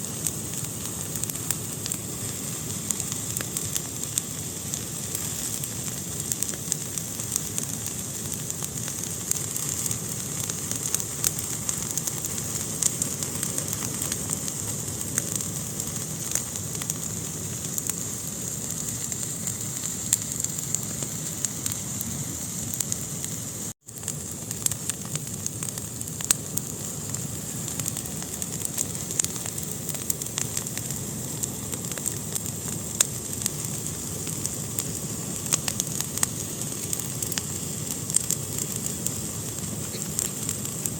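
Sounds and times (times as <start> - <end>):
fire crackling in a fireplace: 0.0 - 40.9.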